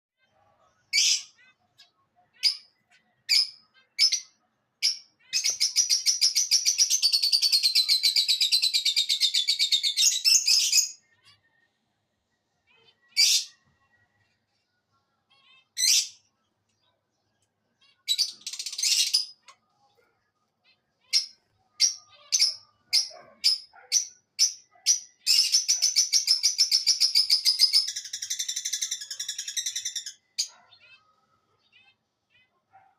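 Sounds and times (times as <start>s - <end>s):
parrot calling: 17.8s - 32.9s.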